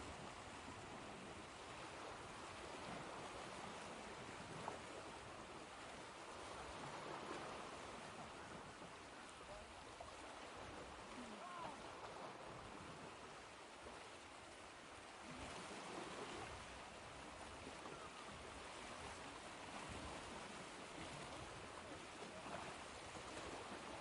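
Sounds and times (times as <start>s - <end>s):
faint ocean surf rushing: 0.0s - 24.0s.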